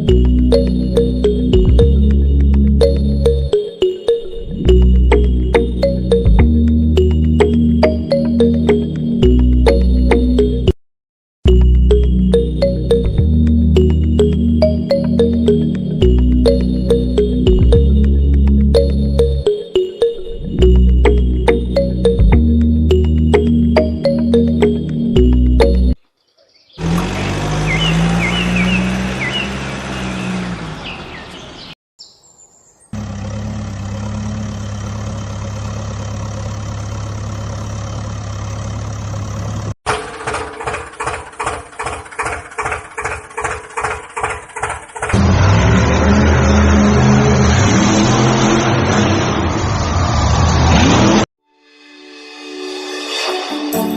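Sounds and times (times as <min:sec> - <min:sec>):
tractor engine chugging: 0:33.0 - 0:45.4.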